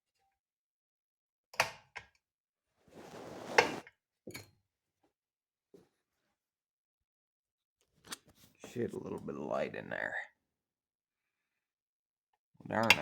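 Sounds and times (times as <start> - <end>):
scraping rustle: 2.9 - 3.8.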